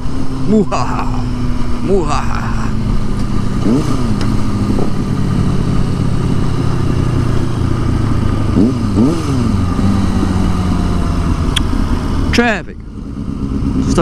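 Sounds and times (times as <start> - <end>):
motorcycle engine with throttle blips: 0.0 - 14.0.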